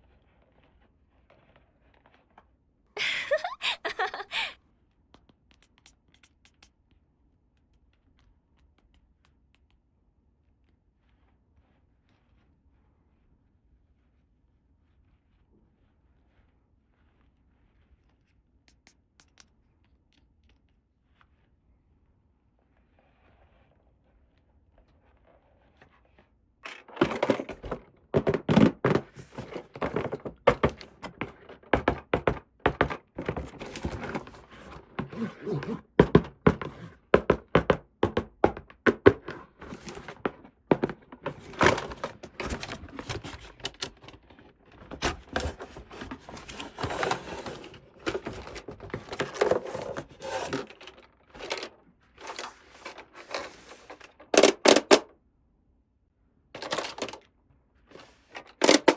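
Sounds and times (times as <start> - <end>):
packaging rustling: 26.6 - 55.0, 56.6 - 57.2
plastic toy parts clicking and tapping: 56.6 - 57.3, 58.0 - 58.9.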